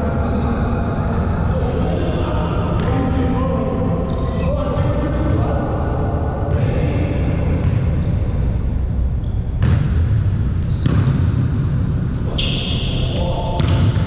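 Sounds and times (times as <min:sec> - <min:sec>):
boomy sports hall din: 0:00.0 - 0:14.0.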